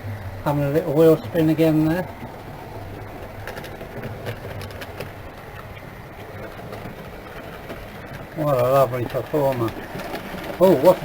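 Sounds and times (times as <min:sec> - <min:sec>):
cooling fans running: 0:00.0 - 0:11.0
model locomotive whirring: 0:00.0 - 0:11.0.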